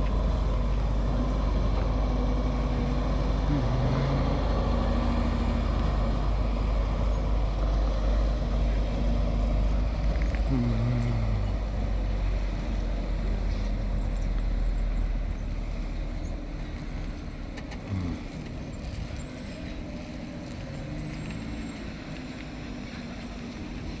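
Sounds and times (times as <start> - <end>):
fire engine motor rumbling: 0.0 - 24.0.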